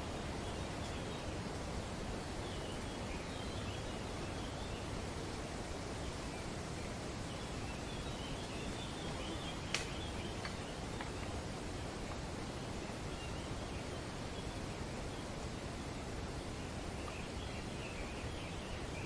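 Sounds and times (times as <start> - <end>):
wind rustling leaves: 0.0 - 19.0
sharp click: 9.7 - 9.9
faint ticks: 9.7 - 11.4.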